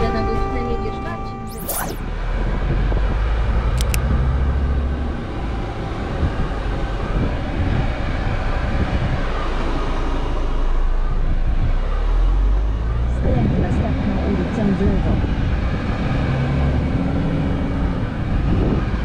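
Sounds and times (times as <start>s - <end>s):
road noise: 0.0s - 19.0s
truck engine rumble: 0.0s - 19.0s
short clicks: 3.8s - 4.0s.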